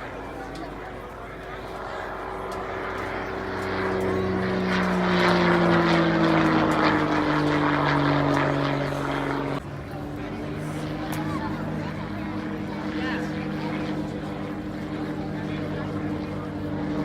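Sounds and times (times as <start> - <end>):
propeller airplane flying past: 0.0 - 17.0.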